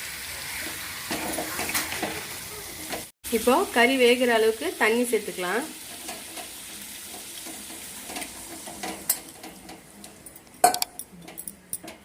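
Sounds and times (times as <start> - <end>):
food sizzling in a pan: 0.0 - 10.2
utensil clanking against pan: 5.9 - 12.0
metal utensil clinks: 10.2 - 12.0.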